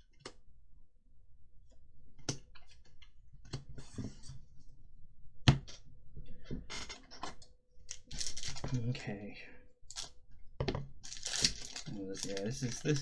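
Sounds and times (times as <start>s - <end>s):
cards clicking and tapping: 7.2s - 8.8s, 9.9s - 13.0s
wrappers rustling: 7.9s - 8.8s, 11.0s - 13.0s.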